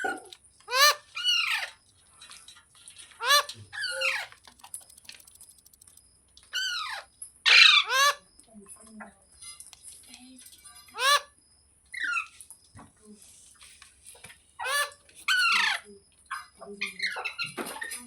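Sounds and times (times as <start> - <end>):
parrot screeching: 0.7 - 1.7, 3.2 - 4.3, 6.6 - 8.2, 11.0 - 11.3, 14.6 - 15.8.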